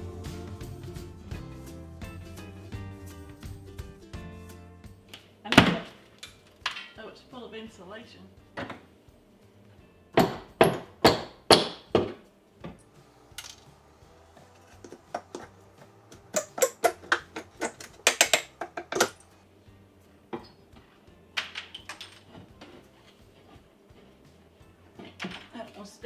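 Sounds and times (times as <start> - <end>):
hand tools knocking on wood: 10.2 - 12.8, 14.4 - 19.1.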